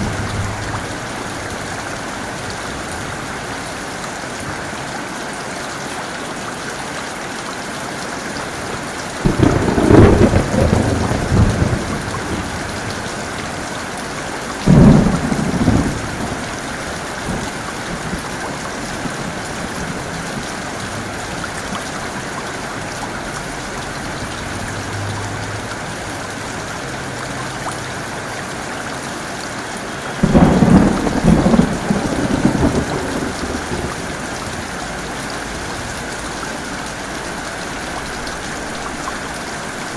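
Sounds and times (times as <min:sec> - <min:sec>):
thunder rumbling: 0:00.0 - 0:03.4, 0:09.2 - 0:13.7, 0:14.6 - 0:26.0, 0:30.2 - 0:35.9
heavy rain falling: 0:00.0 - 0:39.9.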